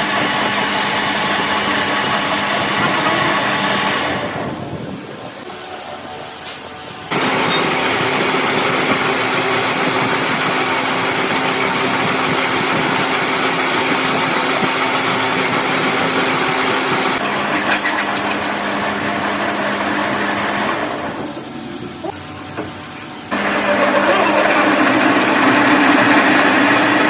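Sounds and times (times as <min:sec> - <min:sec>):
machine humming: 0:06.9 - 0:27.0.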